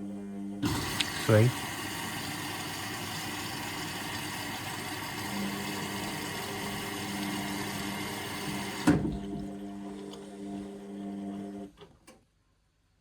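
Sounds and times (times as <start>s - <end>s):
washing machine low hum: 0.0s - 11.8s
washing machine hiss: 0.6s - 9.3s.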